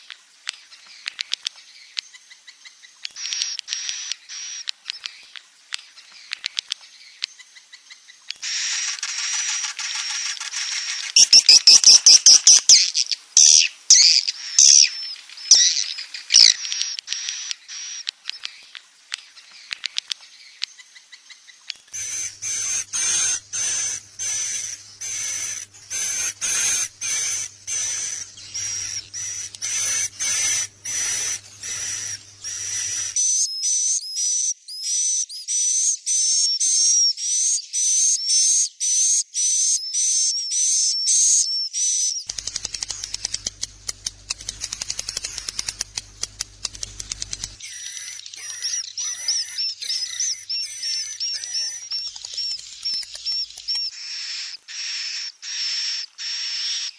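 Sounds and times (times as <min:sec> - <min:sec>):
swiftlet chirping and twittering: 0:07.0 - 0:33.8, 0:42.3 - 0:56.9.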